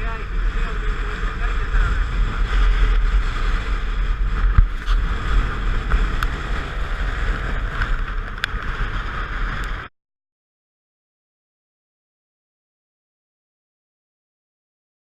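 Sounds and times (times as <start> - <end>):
moving vehicle running noise: 0.0 - 9.9
wind buffeting on microphone: 0.0 - 9.9.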